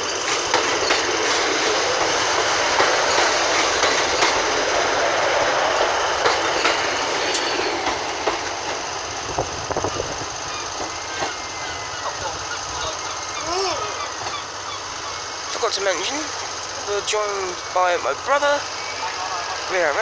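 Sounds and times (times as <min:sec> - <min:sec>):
train wheels rumbling on rail: 0:00.0 - 0:20.0
sharp rail clicks: 0:00.1 - 0:11.5.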